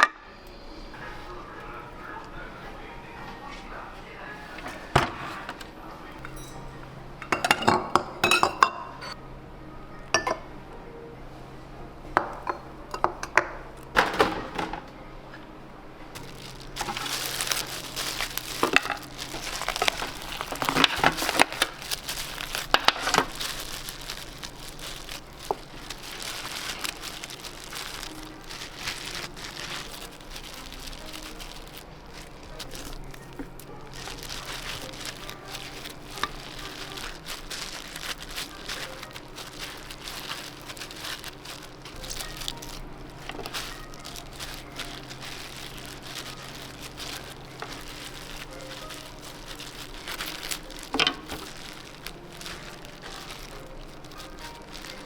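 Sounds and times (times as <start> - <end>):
low steady hum: 0.0 - 55.0
dishes and utensils clinking: 4.6 - 9.2, 10.1 - 10.5, 12.2 - 14.9, 16.2 - 55.0
crinkling and rustling: 16.2 - 55.0.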